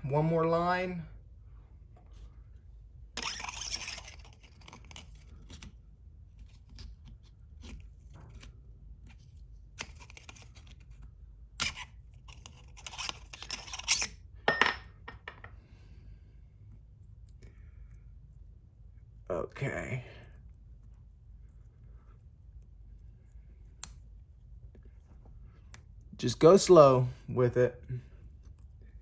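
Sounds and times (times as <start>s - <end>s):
scraping and rustling of tools: 3.2s - 5.7s, 11.6s - 15.6s.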